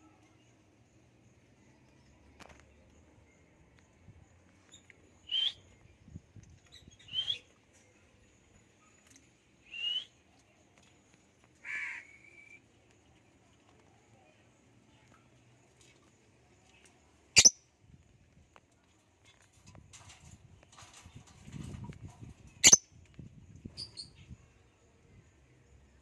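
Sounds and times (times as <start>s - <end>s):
lovebirds calling: 17.4s - 17.6s, 22.6s - 22.8s.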